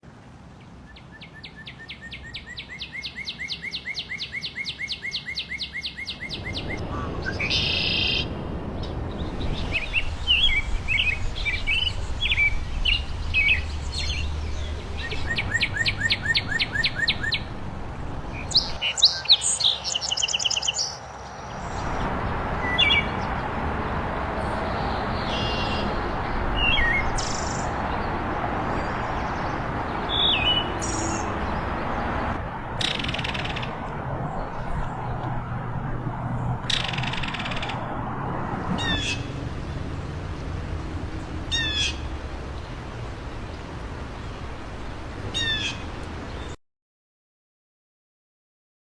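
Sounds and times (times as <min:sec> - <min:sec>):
songbirds singing: 0:00.6 - 0:35.4, 0:38.7 - 0:46.6
steady rushing noise: 0:06.3 - 0:18.8, 0:21.5 - 0:46.5.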